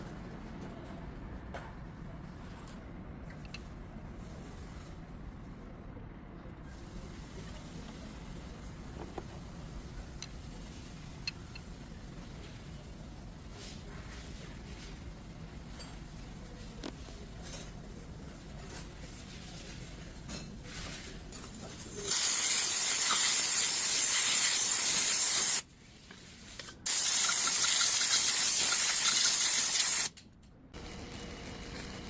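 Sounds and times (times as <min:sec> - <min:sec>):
hissing spray: 0:22.1 - 0:25.6, 0:26.9 - 0:30.1.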